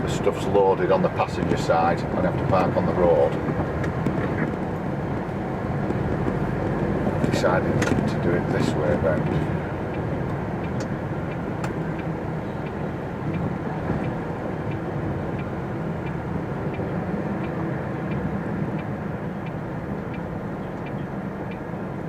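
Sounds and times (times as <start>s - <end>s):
indicator ticking: 14.0s - 21.7s.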